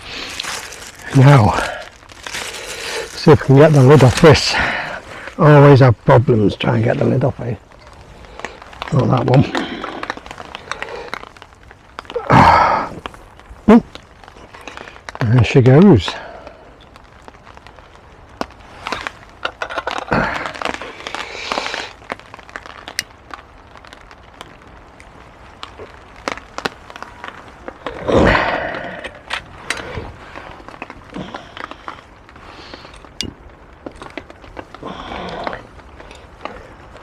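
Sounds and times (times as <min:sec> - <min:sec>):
heavy rain pattering: 0:00.0 - 0:37.0
camping cook kit clicking and rattling: 0:29.0 - 0:30.0, 0:32.8 - 0:34.4.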